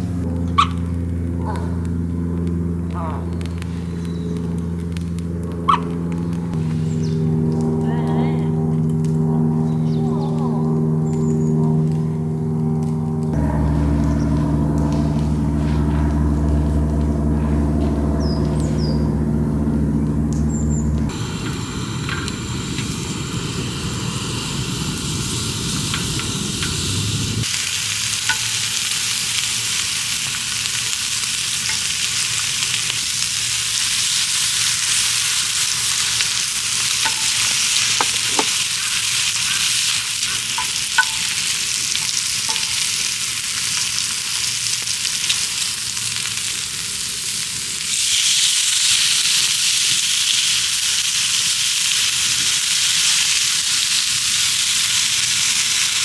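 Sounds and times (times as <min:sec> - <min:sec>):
low rumbling sound: 0:00.0 - 0:27.6
food sizzling in oil: 0:21.1 - 0:56.0.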